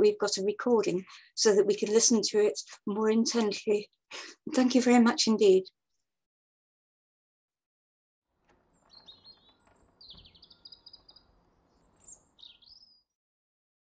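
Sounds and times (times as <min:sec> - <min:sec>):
birdsong chirps and trills: 0:08.6 - 0:13.2.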